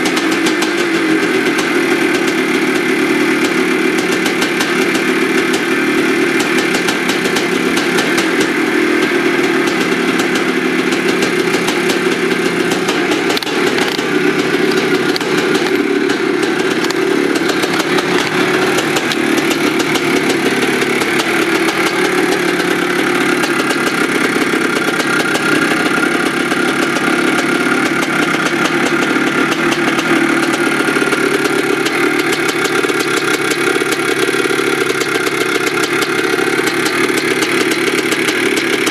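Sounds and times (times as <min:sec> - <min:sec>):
dirt bike engine idling: 0:00.0 - 0:38.9.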